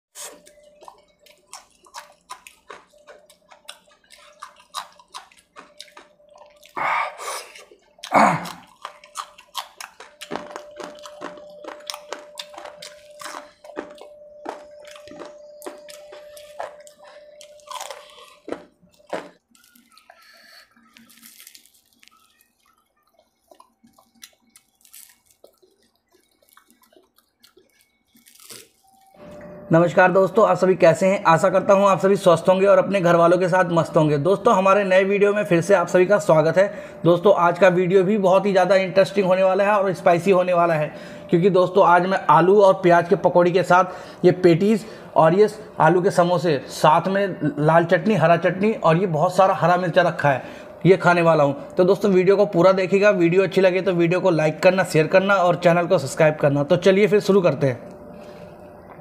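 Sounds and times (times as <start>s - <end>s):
loud food crunches: 0.2s - 6.8s, 7.5s - 29.0s
chewing with wet mouth clicks: 0.2s - 29.2s
faint steady hum: 0.2s - 59.0s.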